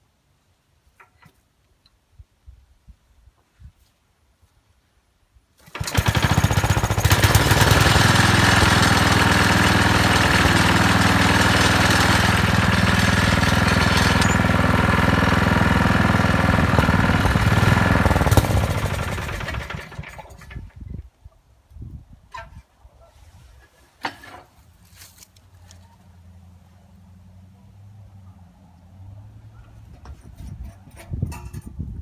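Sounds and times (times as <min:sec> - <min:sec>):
small engine running: 0:05.7 - 0:20.5.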